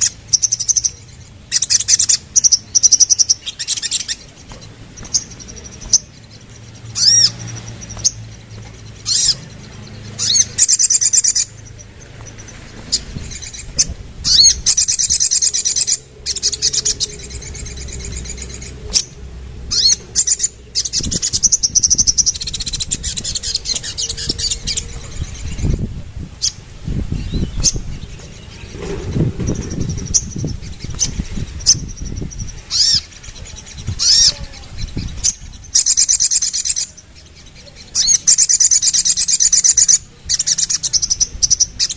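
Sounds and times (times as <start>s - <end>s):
bird chirps and trills: 0.0s - 41.9s.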